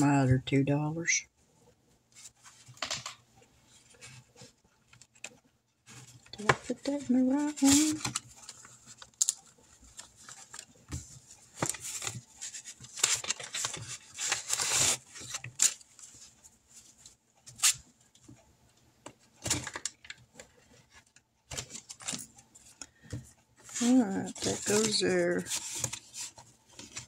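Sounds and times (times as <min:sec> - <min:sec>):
paper bills rustling: 0:05.2 - 0:10.7, 0:11.5 - 0:16.2, 0:23.7 - 0:27.0.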